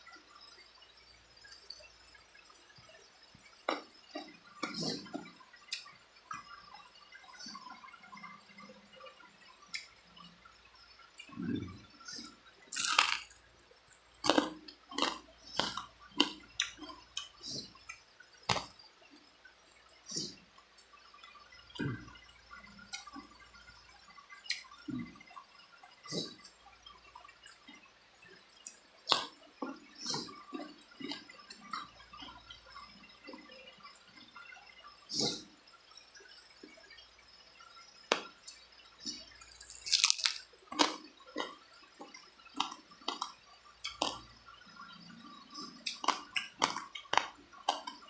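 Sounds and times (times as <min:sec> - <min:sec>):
wet chewing and lip-smacking: 0:12.2 - 0:18.8, 0:39.4 - 0:44.3, 0:45.6 - 0:48.0.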